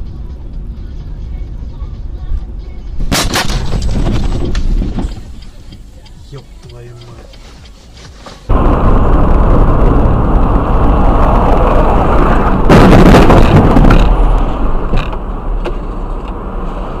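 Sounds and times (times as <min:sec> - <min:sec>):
loud vehicle noise: 0:00.0 - 0:17.0
rush of noise: 0:08.5 - 0:15.6.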